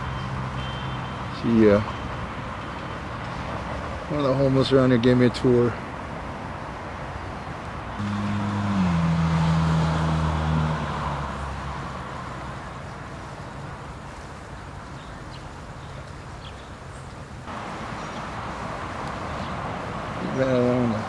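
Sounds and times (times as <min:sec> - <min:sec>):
vehicle engine passing by: 0:08.0 - 0:12.9.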